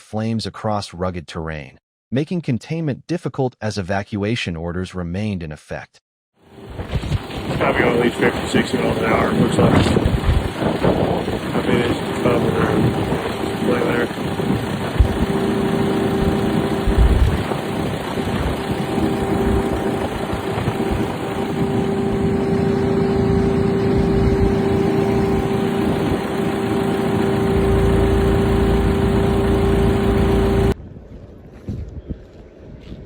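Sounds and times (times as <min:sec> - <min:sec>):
engine drone: 0:06.4 - 0:30.8
rushing noise: 0:06.6 - 0:30.8
wind on microphone: 0:06.7 - 0:08.5, 0:09.2 - 0:22.7, 0:30.8 - 0:33.0.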